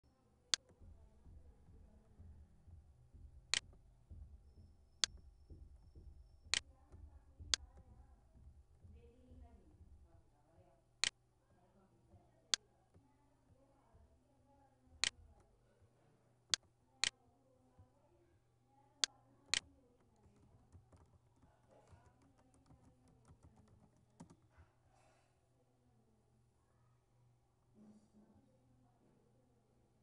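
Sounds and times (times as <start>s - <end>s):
keyboard typing: 0.5s - 10.3s, 19.0s - 24.5s
mouse clicks: 6.4s - 7.8s.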